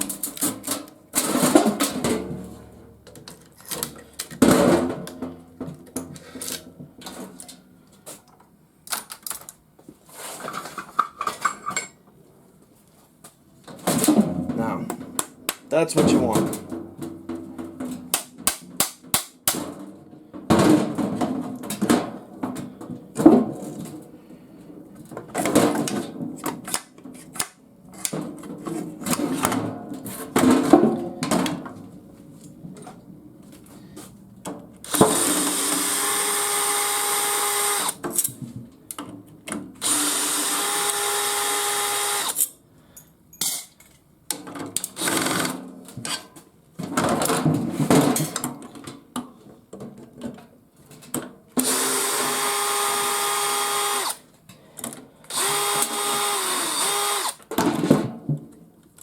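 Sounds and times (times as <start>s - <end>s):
knocks and rattles of parts handled: 0.0s - 12.1s
power drill whining: 34.9s - 38.0s, 39.8s - 42.4s, 51.6s - 54.2s, 55.3s - 57.4s.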